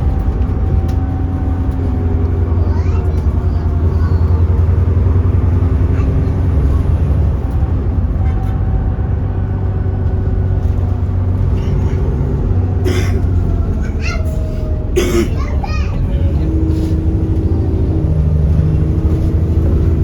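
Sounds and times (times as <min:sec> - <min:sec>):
bus diesel engine drone: 0:00.0 - 0:20.0.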